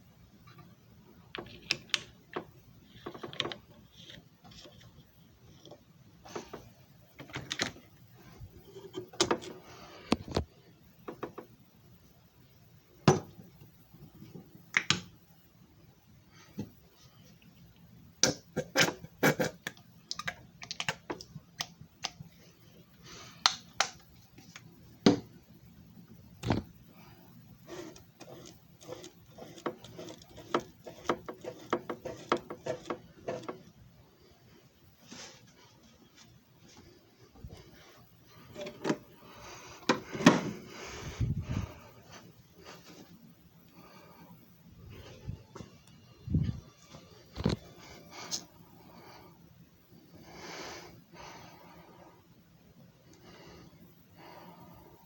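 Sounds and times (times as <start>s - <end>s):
hard objects knocking and clicking: 10.1s - 11.6s, 27.9s - 33.7s.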